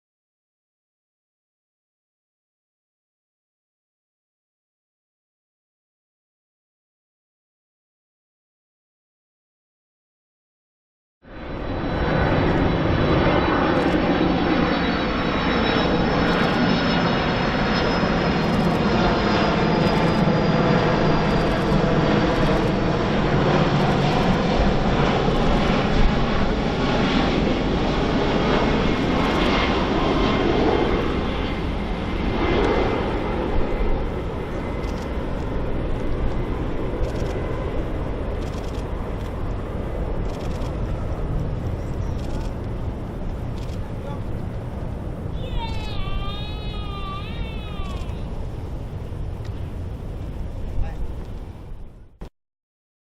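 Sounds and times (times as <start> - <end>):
jet airliner passing close by: 11.2 - 52.2.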